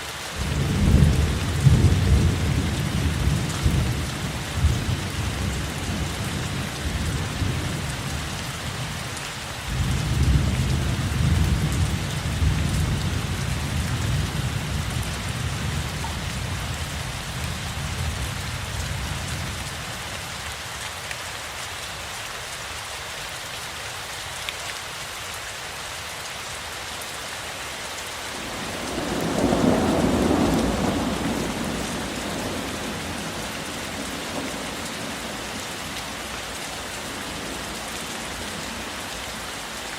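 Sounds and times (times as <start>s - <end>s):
heavy rain falling: 0.0s - 39.9s
thunder rumbling: 28.4s - 36.0s.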